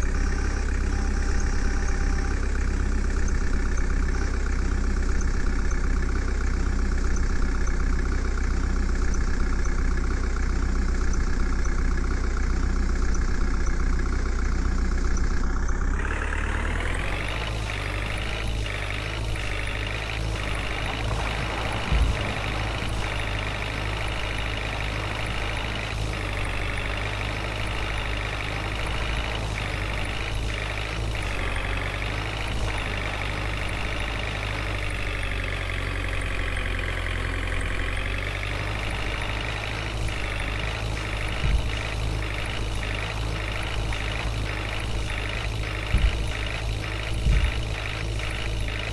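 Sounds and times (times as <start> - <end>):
heavy diesel engine running: 0.0 - 48.9
short thump: 47.2 - 47.7.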